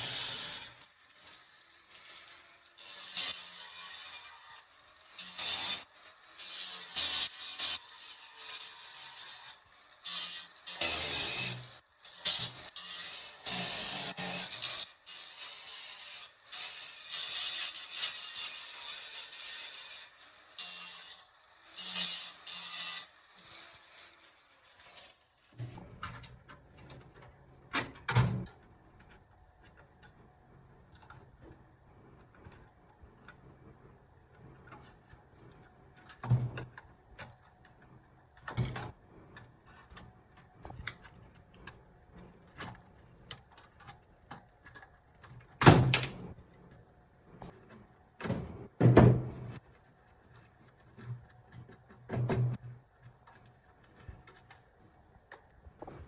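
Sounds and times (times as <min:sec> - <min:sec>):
parts knocking on workbench: 0:48.2 - 0:49.5.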